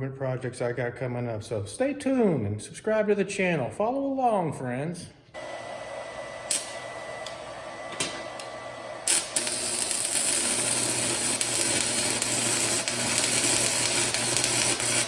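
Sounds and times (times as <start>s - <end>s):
welding arc crackling: 6.4s - 15.0s.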